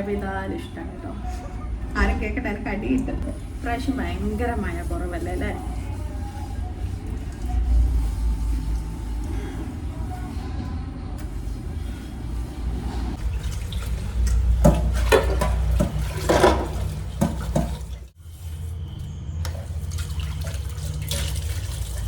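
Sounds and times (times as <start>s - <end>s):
water running from a tap: 13.2s - 18.2s, 19.4s - 22.0s
dishes knocking and clinking: 14.3s - 18.0s.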